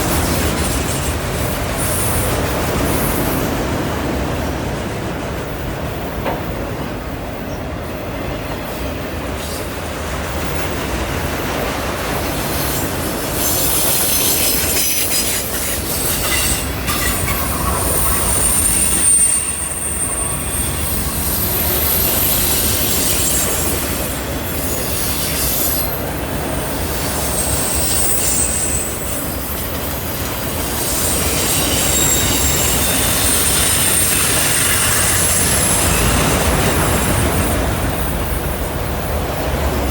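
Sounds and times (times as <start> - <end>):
train wheels rumbling on rail: 0.0 - 39.9
wheel flanges squealing: 13.4 - 26.0, 27.2 - 37.7.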